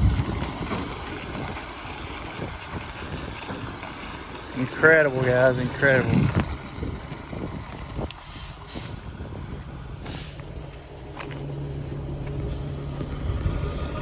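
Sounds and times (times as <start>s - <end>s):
diesel truck engine idling: 0.0s - 14.0s
air brake hisses: 8.2s - 9.1s, 10.0s - 10.5s.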